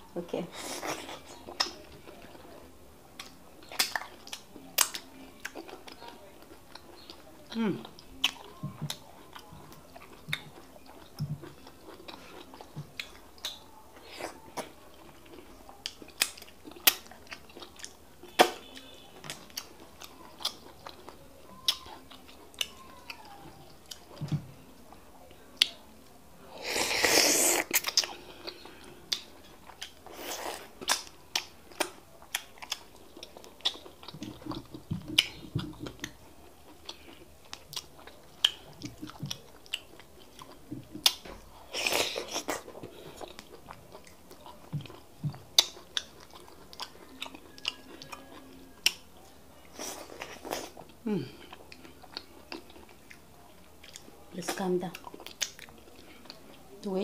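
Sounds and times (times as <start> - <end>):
wet mouth smacking and chewing: 0.7 - 24.3, 27.0 - 54.1, 54.9 - 56.6.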